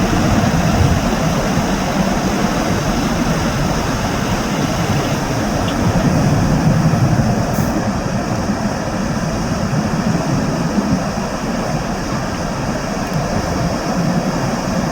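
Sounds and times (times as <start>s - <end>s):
jet engines rumbling: 0.0s - 14.9s.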